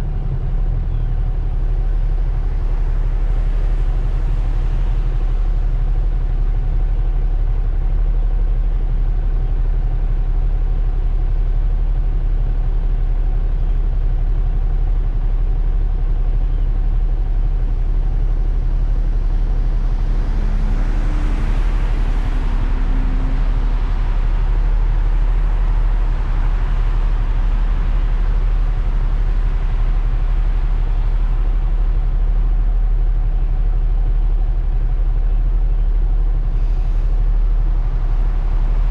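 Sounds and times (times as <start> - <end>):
road and wind rumble: 0.0 - 38.9.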